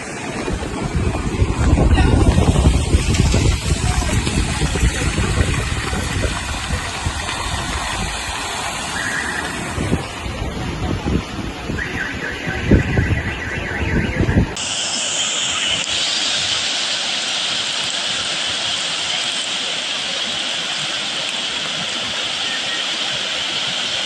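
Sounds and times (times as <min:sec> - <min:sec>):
wind buffeting microphone: 0:00.0 - 0:14.6
steady hiss: 0:14.6 - 0:24.0.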